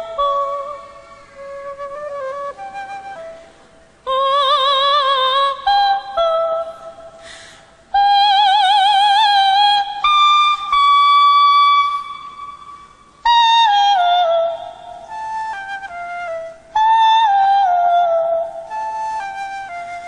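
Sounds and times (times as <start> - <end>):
soprano singing high notes: 0.0 - 20.0
singer breathing: 7.1 - 7.9.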